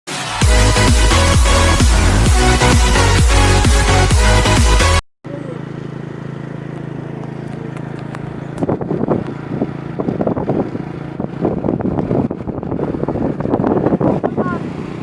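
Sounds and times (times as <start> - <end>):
motorcycle engine running: 0.4 - 15.0.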